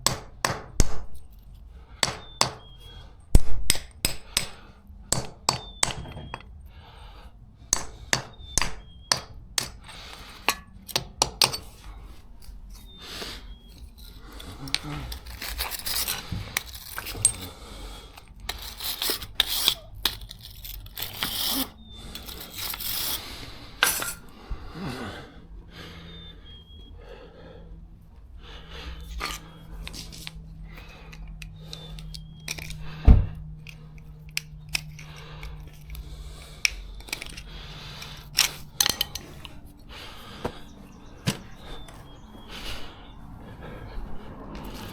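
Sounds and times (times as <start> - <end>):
hand tools clinking on metal: 3.7 - 6.6, 7.7 - 13.0, 13.6 - 23.2, 23.8 - 24.3, 29.0 - 32.9, 33.6 - 39.8.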